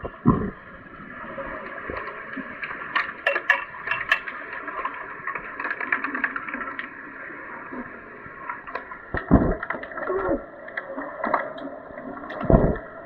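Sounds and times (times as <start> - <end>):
sharp clicks and knocks: 2.9 - 6.9.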